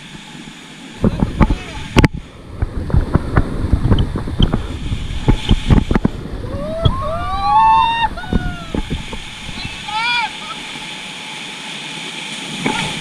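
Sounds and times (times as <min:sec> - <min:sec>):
river water churning against raft: 0:00.0 - 0:13.0
wind buffeting microphone: 0:00.9 - 0:10.4
person whooping: 0:06.4 - 0:08.8.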